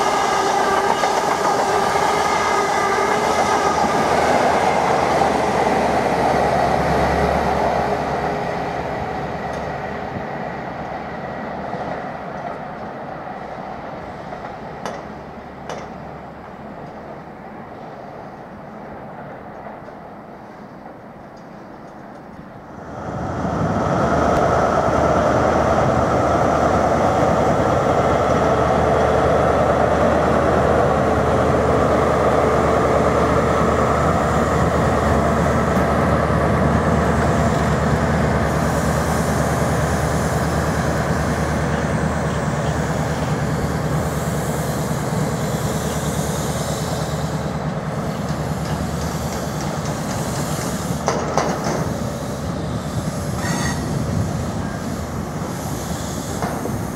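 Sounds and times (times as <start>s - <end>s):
train rumbling: 0.0s - 56.9s
high hiss: 38.5s - 51.2s, 51.8s - 56.9s.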